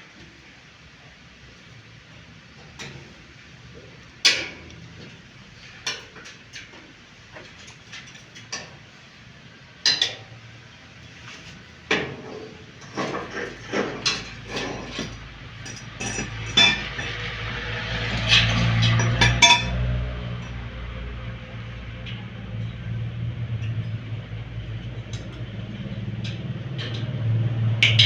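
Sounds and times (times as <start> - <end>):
metal tools clinking and knocking: 12.8 - 17.3, 18.2 - 19.8.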